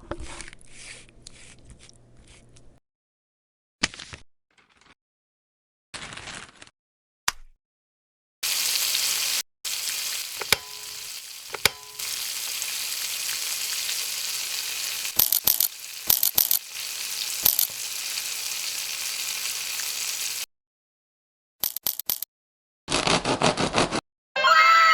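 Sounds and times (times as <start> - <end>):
food sizzling in oil: 8.4 - 20.5
utensil clattering against pan: 10.4 - 12.5.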